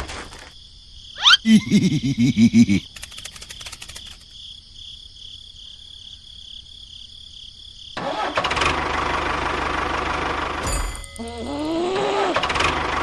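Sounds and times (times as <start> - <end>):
engine starting and running: 8.0 - 13.0.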